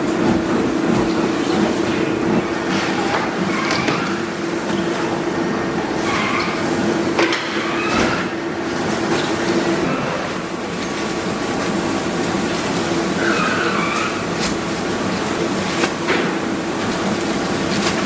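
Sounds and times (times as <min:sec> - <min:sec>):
factory machinery hum and clatter: 0:00.0 - 0:18.0
machinery squeals: 0:13.2 - 0:14.3.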